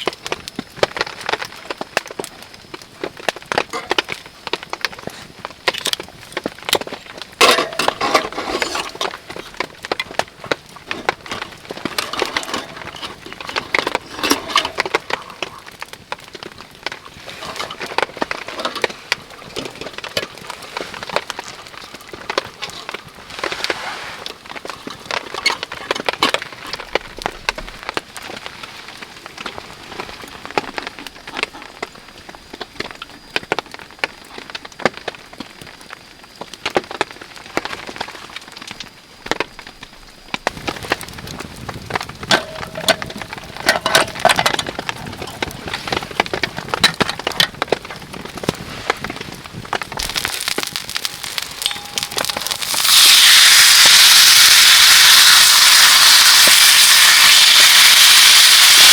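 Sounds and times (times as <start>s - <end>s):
wood cracking and splintering: 0.0s - 23.7s, 24.3s - 57.6s
steady rain: 0.0s - 58.9s.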